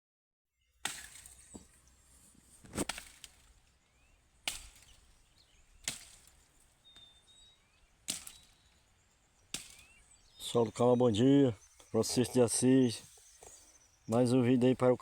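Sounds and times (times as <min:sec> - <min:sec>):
blade chopping wood: 0:00.8 - 0:01.7, 0:02.7 - 0:03.4, 0:04.5 - 0:05.0, 0:05.8 - 0:06.4, 0:08.1 - 0:08.5, 0:09.5 - 0:10.0.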